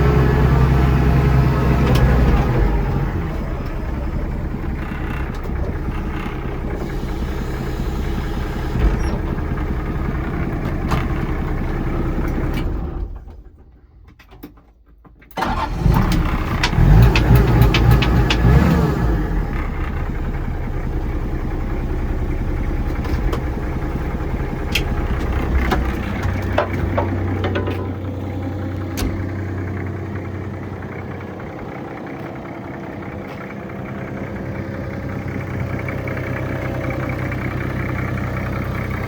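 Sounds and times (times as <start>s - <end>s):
diesel engine idling: 0.0s - 13.8s, 15.4s - 39.0s
clanks: 8.7s - 20.2s, 22.8s - 38.9s.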